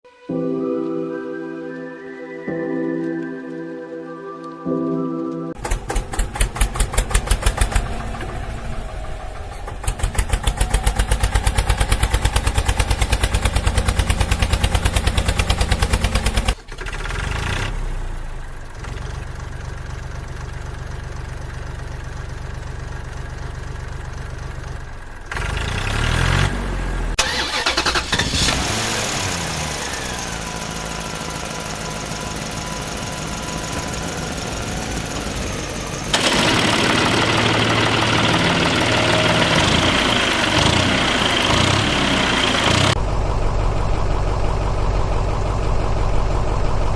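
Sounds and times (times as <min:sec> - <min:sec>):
heavy vehicle engine chugging: 0:05.6 - 0:17.4, 0:18.5 - 0:26.0, 0:29.7 - 0:46.9.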